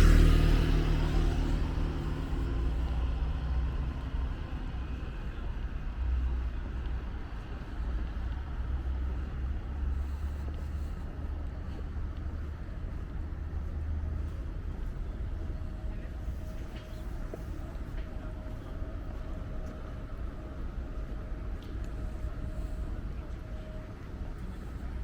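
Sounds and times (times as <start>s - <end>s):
vehicle engine passing by: 0.0s - 6.4s
low rumble of traffic: 0.0s - 25.0s.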